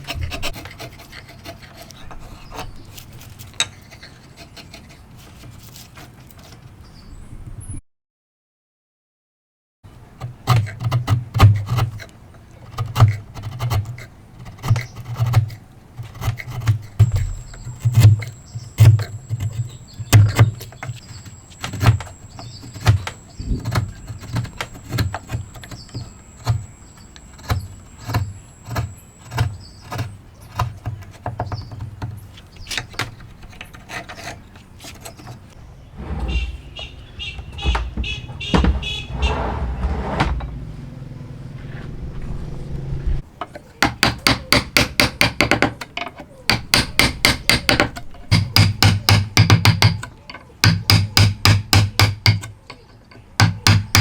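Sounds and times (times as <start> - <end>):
wood rubbing and scraping: 0.0 - 6.8, 10.2 - 48.7
sharp knocks on wood: 36.0 - 39.2, 46.5 - 50.0.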